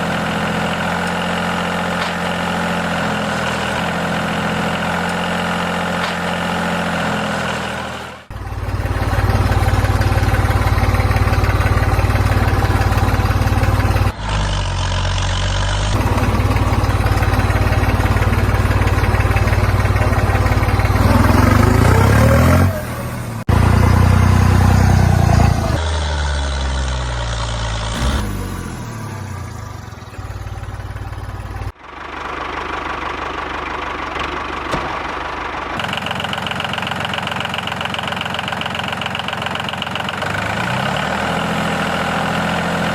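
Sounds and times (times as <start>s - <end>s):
miniature tractor engine running: 0.0s - 42.9s.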